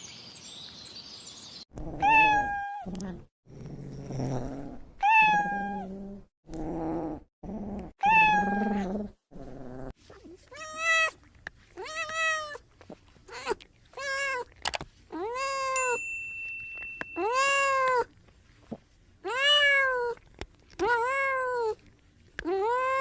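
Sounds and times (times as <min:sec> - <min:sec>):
cat meowing: 0:02.0 - 0:02.9, 0:08.0 - 0:08.8.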